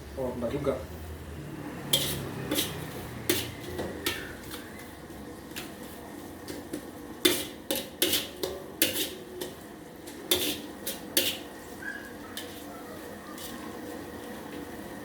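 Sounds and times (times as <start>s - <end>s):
metal spatula scraping a wok: 1.8s - 4.9s, 5.6s - 14.1s.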